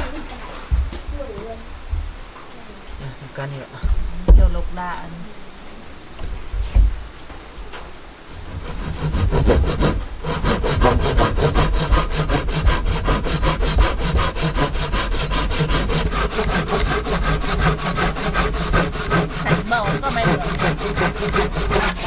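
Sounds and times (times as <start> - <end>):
saw cutting through wood: 8.3 - 22.0.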